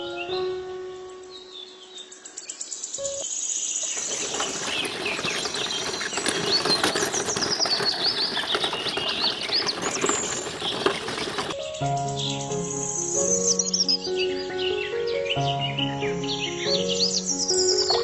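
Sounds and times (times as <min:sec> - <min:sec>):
small birds chirping: 0:01.3 - 0:11.6, 0:13.6 - 0:18.0
rustling pattering noise: 0:03.9 - 0:11.6.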